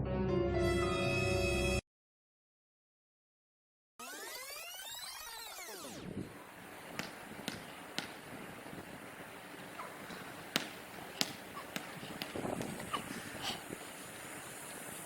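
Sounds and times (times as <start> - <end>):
background hiss: 6.2 - 15.0
basketball bouncing: 6.9 - 8.3, 9.6 - 13.2.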